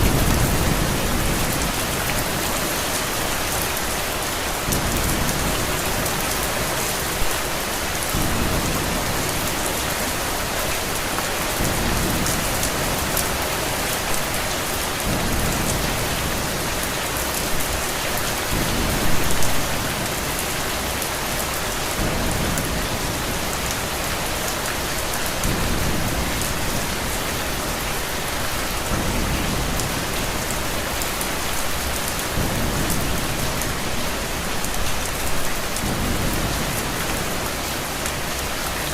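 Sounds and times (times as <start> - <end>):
thunder rumbling: 0.0 - 3.6, 8.0 - 10.3
steady rain: 0.0 - 38.9.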